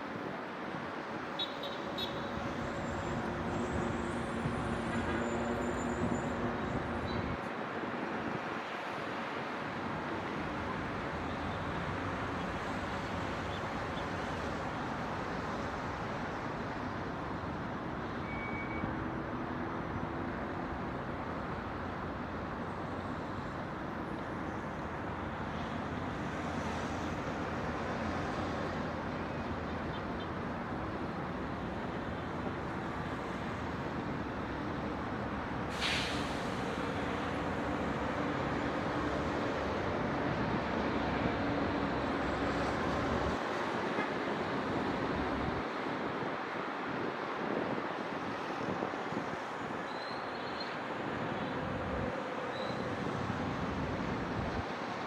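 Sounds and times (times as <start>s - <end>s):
city traffic noise: 0.0s - 55.0s
short hiss: 35.7s - 36.8s.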